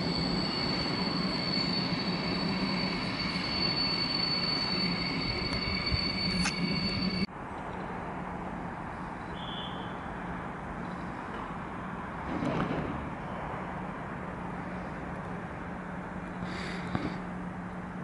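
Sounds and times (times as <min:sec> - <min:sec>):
train wheel squeal: 0:00.0 - 0:07.3, 0:09.3 - 0:10.1
steady low train hum: 0:00.0 - 0:18.0.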